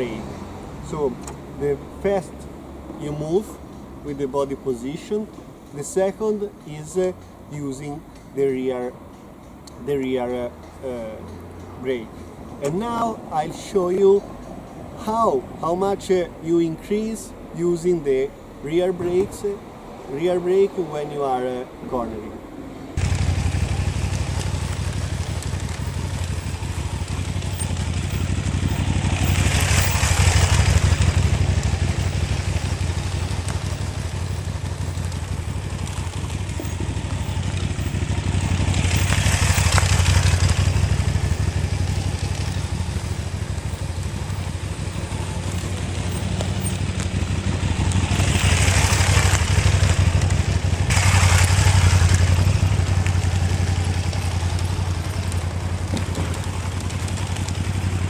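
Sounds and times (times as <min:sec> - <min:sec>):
motorcycle engine running: 0:23.0 - 0:58.0
rushing hiss: 0:50.9 - 0:55.0.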